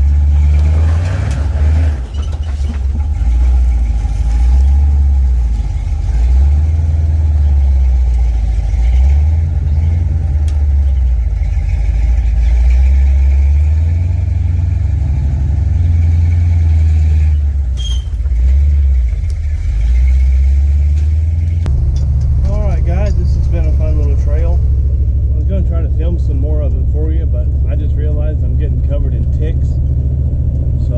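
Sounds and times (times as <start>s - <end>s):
pickup truck engine droning: 0.0s - 30.9s.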